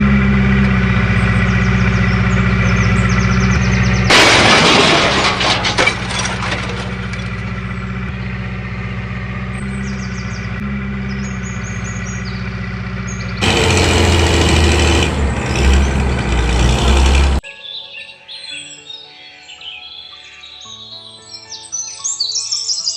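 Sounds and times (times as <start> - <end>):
vehicle engine running: 0.0 - 17.4.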